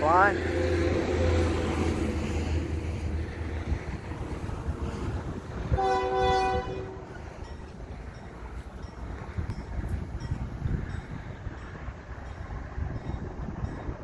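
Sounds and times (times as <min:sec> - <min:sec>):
freight train rumbling past: 0:00.0 - 0:14.0
train horn blast: 0:00.2 - 0:02.1, 0:05.6 - 0:07.1.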